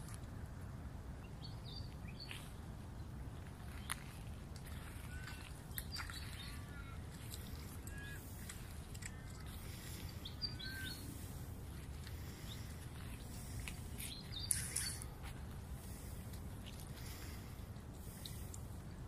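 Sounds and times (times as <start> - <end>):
steady low rumble: 0.0 - 19.0
small birds chirping: 1.2 - 15.2.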